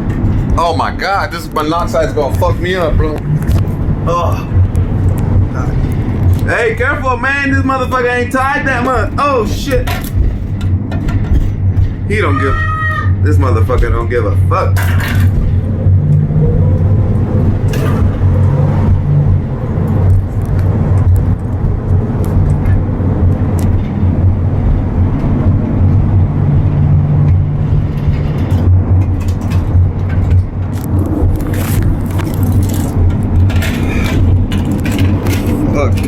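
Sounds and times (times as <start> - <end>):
loose cargo rattling and knocking: 0.0 - 36.0
vehicle engine and road drone: 0.0 - 36.0.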